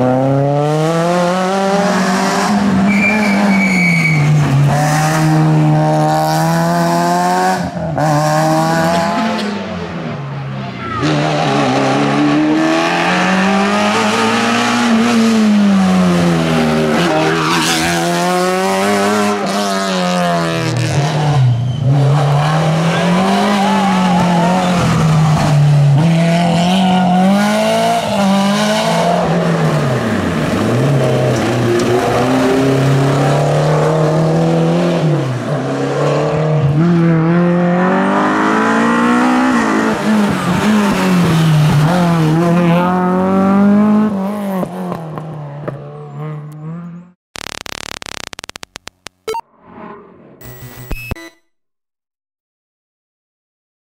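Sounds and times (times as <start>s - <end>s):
rally car engine revving: 0.0s - 47.1s
tyre squeal: 2.9s - 4.4s.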